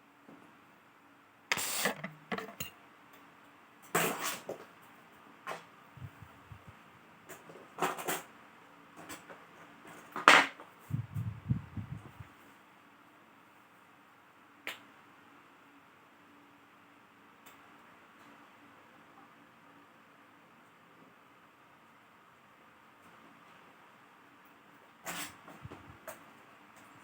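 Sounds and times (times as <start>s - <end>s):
clicks and knocks of tools handled: 1.5s - 2.8s.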